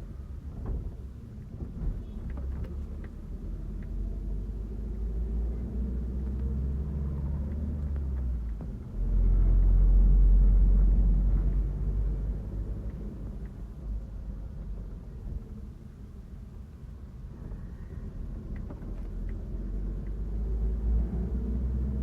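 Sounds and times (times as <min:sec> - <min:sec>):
bus engine and road rumble: 0:00.0 - 0:22.0
light rattles and clicks: 0:00.2 - 0:04.6, 0:11.2 - 0:16.0, 0:17.4 - 0:20.4.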